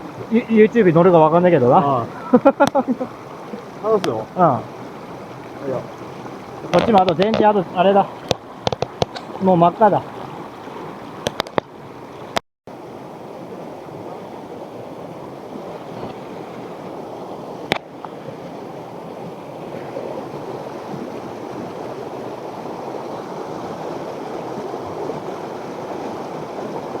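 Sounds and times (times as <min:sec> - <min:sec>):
stream flowing over stones: 0:00.0 - 0:27.0
sharp clicks: 0:06.7 - 0:07.5, 0:08.3 - 0:09.3.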